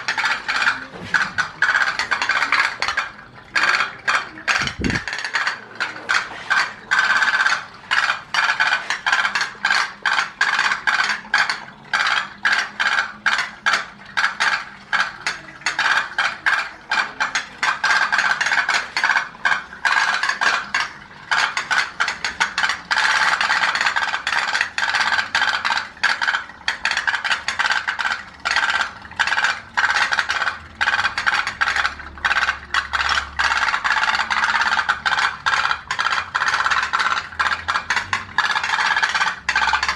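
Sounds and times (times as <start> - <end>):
pop-pop boat engines clattering: 0.0 - 39.9.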